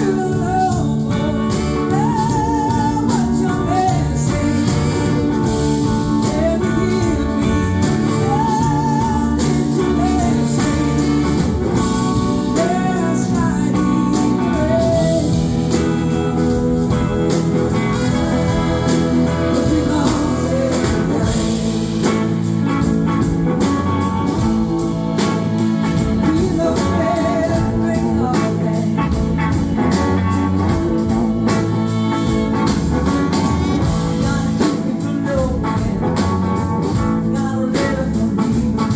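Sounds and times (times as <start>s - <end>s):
person singing with vibrato: 0.0s - 33.1s, 33.8s - 38.9s
bass guitar: 0.0s - 38.9s
drums with cymbals: 0.0s - 38.9s
electric guitar: 0.0s - 38.9s.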